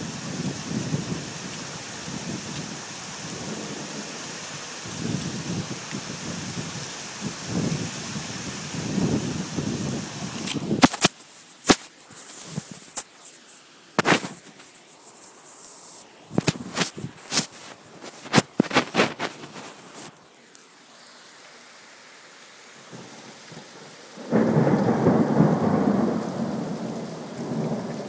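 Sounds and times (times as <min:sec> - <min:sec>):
rain falling: 0:00.0 - 0:28.0
low rumbling thunder: 0:03.3 - 0:06.7, 0:23.6 - 0:28.0.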